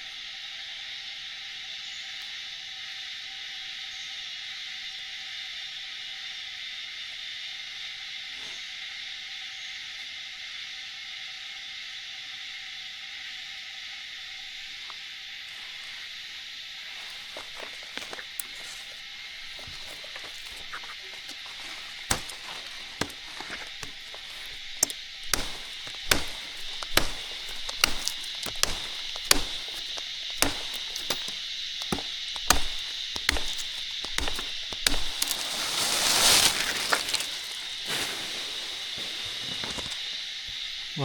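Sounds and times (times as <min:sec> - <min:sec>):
chopping strikes into wood: 0:17.1 - 0:38.1
high-pitched hiss: 0:35.3 - 0:41.0.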